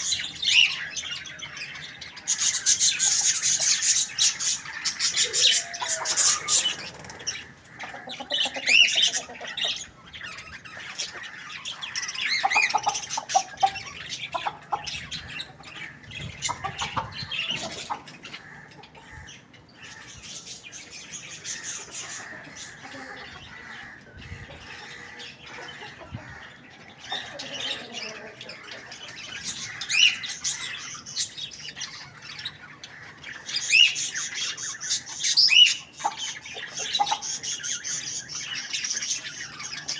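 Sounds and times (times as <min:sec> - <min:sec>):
chickens squawking and clucking: 0:00.0 - 0:39.9.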